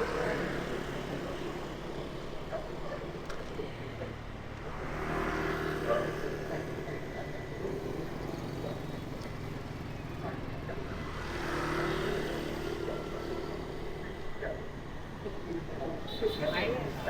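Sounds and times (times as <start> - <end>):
motorbike and car engines passing: 0.0 - 17.0.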